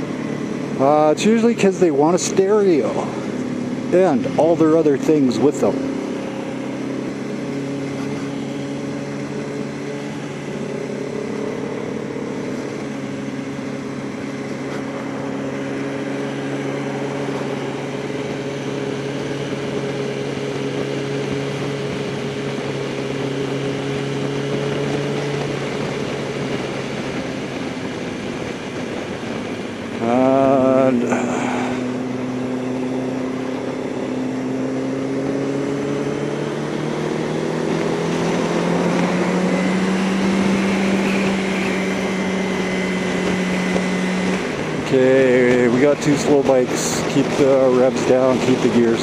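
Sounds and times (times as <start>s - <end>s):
motorcycle engine cruising: 0.0s - 49.0s
wind on microphone: 24.2s - 32.3s.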